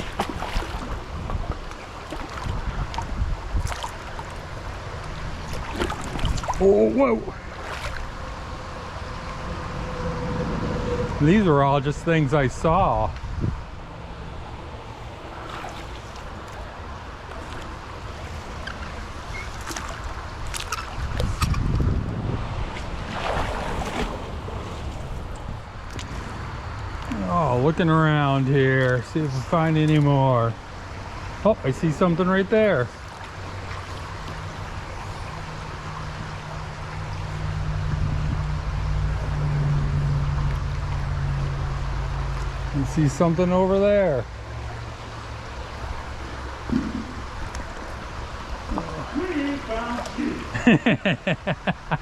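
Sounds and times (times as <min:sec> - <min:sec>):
wind on microphone: 0:00.0 - 0:06.7, 0:12.6 - 0:27.0, 0:36.2 - 0:40.4
creek water flowing: 0:00.0 - 0:52.0
low engine hum: 0:00.0 - 0:52.0.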